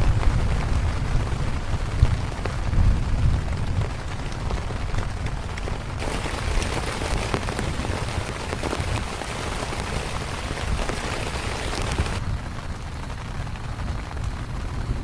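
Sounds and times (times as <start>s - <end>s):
heavy rain pattering: 0.0s - 15.0s.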